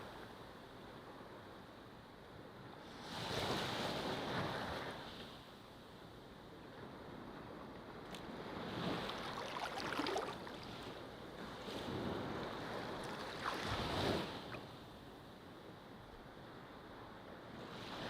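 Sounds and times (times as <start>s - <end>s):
ocean waves breaking: 8.2s - 14.9s.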